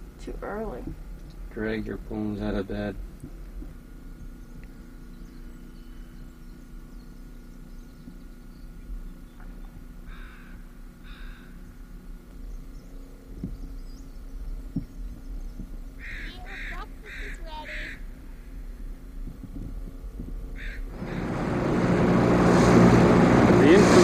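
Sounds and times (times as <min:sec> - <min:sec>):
steady low hum: 0:00.0 - 0:24.0
bird calling: 0:04.4 - 0:11.9, 0:12.5 - 0:18.8, 0:20.6 - 0:21.9.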